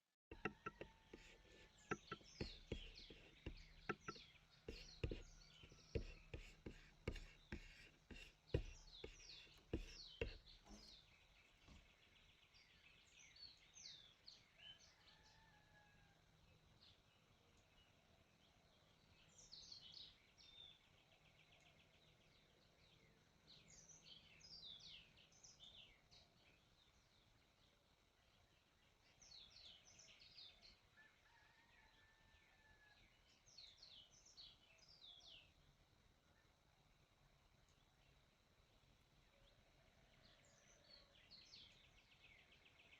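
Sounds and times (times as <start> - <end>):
faint bird chirps: 0.3 - 16.1
faint birdsong chirps: 0.3 - 42.9.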